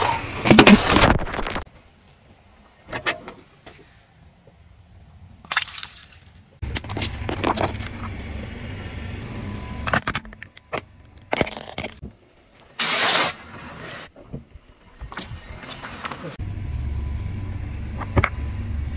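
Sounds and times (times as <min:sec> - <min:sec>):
car rumble: 0:06.6 - 0:12.4, 0:13.6 - 0:18.9.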